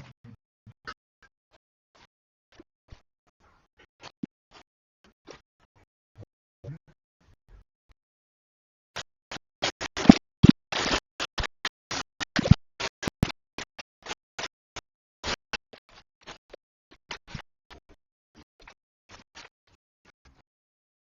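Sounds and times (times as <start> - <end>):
scratching and scraping: 9.3 - 14.5.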